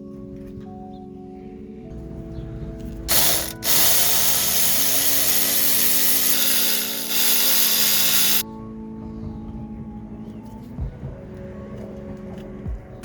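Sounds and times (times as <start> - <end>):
background music: 0.0 - 13.0
loud mechanical rattle: 3.1 - 8.4.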